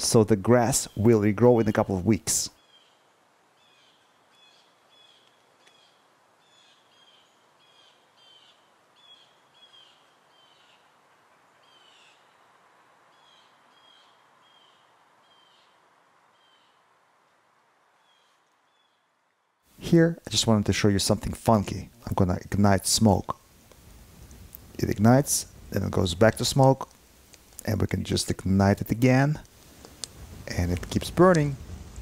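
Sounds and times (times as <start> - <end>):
soft background hiss: 0.0 - 32.0
faint bird chirps: 2.6 - 12.5, 13.1 - 16.9, 18.0 - 19.2.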